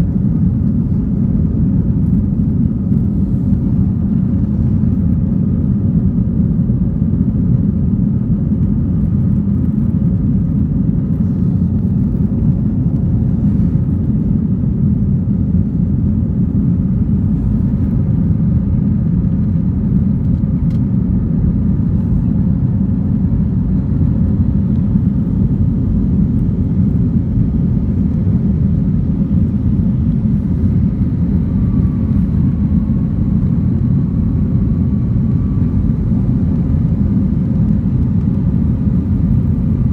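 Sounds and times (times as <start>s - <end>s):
jet engine rumble: 0.0s - 39.9s
faint whining tones: 19.5s - 39.9s.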